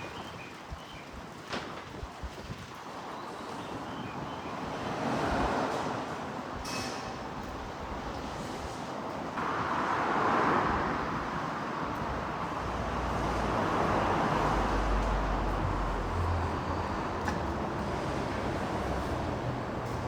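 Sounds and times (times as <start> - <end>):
passing vehicles hiss: 4.7 - 20.0.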